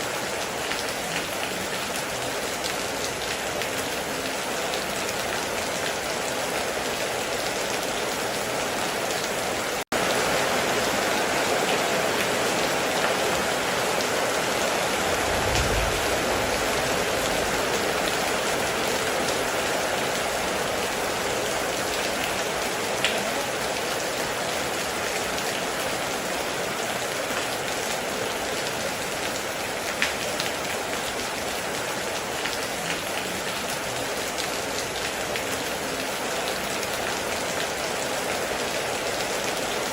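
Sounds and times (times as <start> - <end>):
heavy rain on metal roof: 0.0 - 39.9
low rumble: 15.0 - 18.0.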